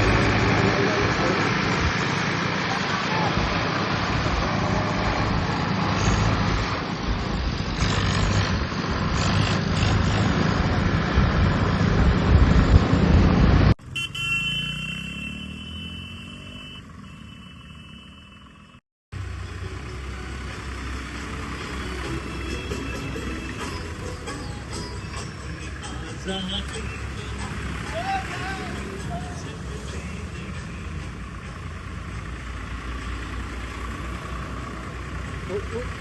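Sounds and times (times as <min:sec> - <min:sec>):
tractor engines running: 0:00.0 - 0:36.0
traffic: 0:00.0 - 0:36.0
vehicle horn: 0:13.9 - 0:18.7.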